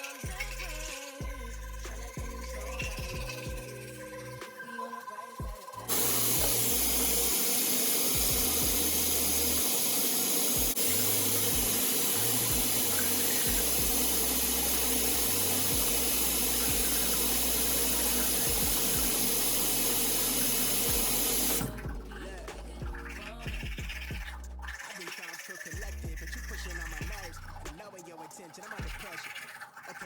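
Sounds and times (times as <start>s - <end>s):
tap water running hard: 0.0s - 4.4s, 5.4s - 22.1s, 22.8s - 27.6s, 28.6s - 30.0s
bass line of a song: 0.3s - 4.4s, 5.8s - 7.3s, 8.2s - 9.6s, 10.6s - 24.8s, 25.8s - 27.8s.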